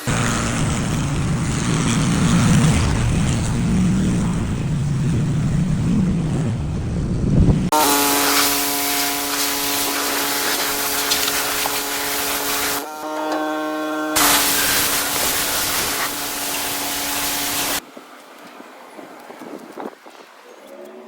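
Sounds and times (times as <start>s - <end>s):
pickup engine low rumble: 0.0s - 7.7s
steady machine hum: 0.0s - 17.8s.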